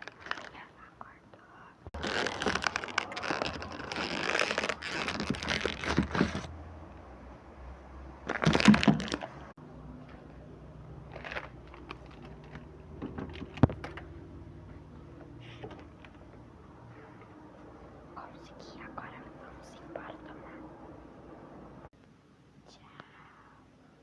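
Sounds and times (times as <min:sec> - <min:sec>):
food packaging crinkling: 0:00.0 - 0:00.7, 0:02.0 - 0:06.5, 0:08.3 - 0:09.4, 0:11.1 - 0:12.7.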